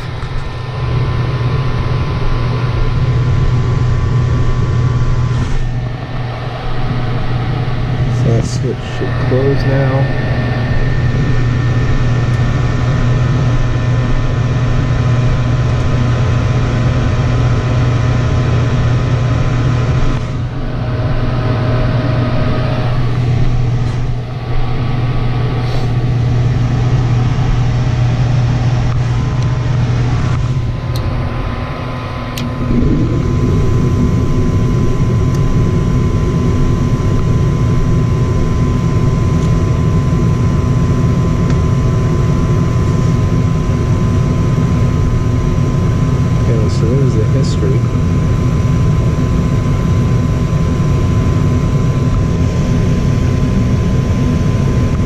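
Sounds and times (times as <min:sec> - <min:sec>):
steady tones: 0:00.0 - 0:16.6, 0:19.3 - 0:37.7
gas furnace motor hum: 0:00.0 - 0:55.0.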